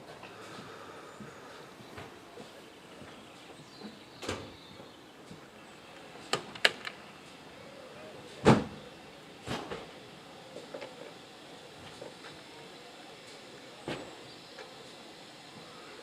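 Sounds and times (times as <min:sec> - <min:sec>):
railway cars banging and knocking: 0:08.2 - 0:15.8.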